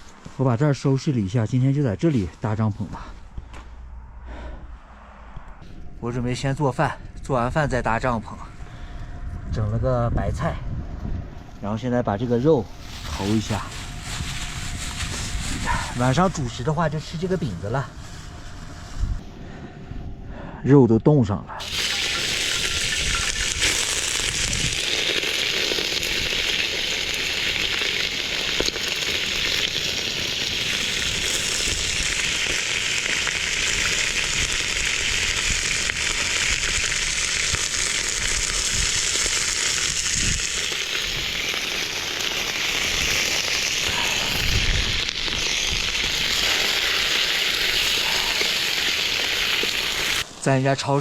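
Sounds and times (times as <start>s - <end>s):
meat sizzling in a pan: 21.6s - 50.2s.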